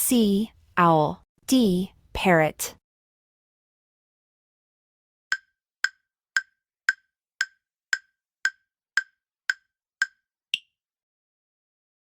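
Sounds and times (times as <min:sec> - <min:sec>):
countdown timer ticks: 0:05.3 - 0:10.7.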